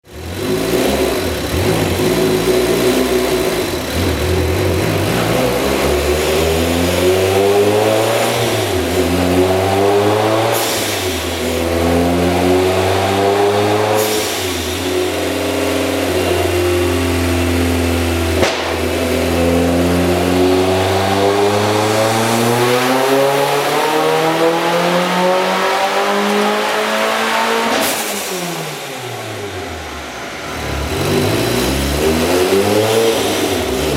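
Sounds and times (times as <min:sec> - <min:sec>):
turbocharged car engine revving: 0:00.1 - 0:33.9
sharp exhaust pops: 0:18.3 - 0:19.2.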